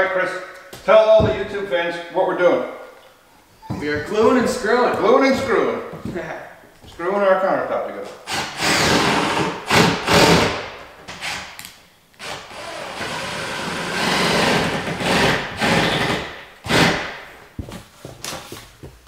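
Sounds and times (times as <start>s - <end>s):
power drill driving screws: 8.3s - 11.5s, 12.2s - 17.1s.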